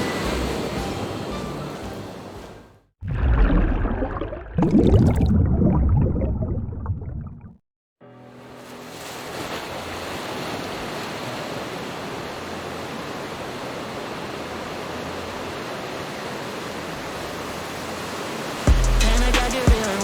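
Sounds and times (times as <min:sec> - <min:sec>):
heavy ocean waves breaking: 0:00.0 - 0:04.4, 0:08.4 - 0:18.7.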